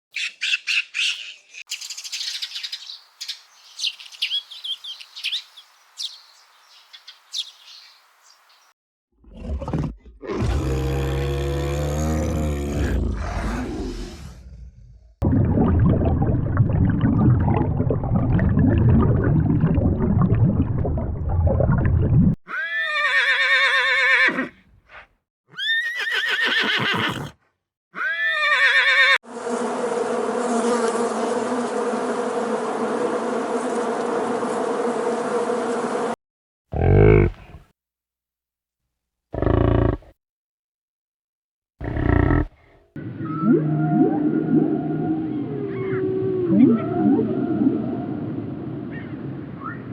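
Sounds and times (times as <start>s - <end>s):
deep animal call: 9.2s - 15.1s, 36.8s - 37.6s, 39.4s - 40.1s, 41.8s - 47.7s
rough noisy animal sound: 9.2s - 15.2s, 36.8s - 37.6s, 39.4s - 40.1s, 41.8s - 47.4s.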